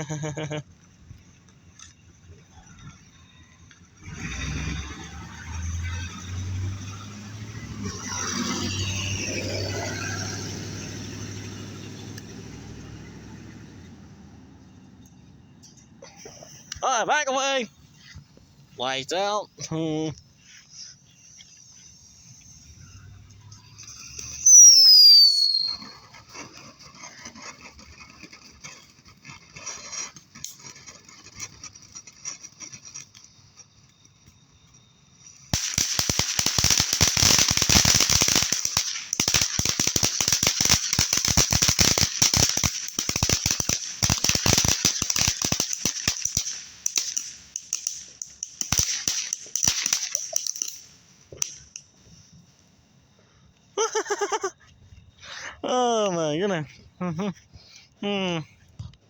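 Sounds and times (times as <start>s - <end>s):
firework crackling pops: 0.0s - 14.0s, 14.9s - 52.5s
firework hiss: 0.0s - 14.0s, 15.2s - 58.6s
firework falling whistle: 2.6s - 12.6s, 21.3s - 51.8s.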